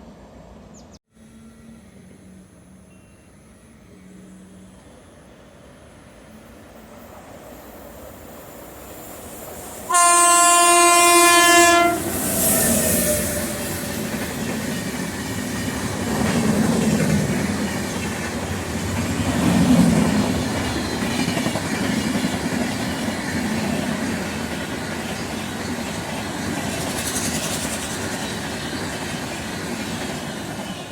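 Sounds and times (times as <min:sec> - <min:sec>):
train wheels rumbling on rails: 0:05.7 - 0:30.9
locomotive horn blast: 0:09.9 - 0:13.8.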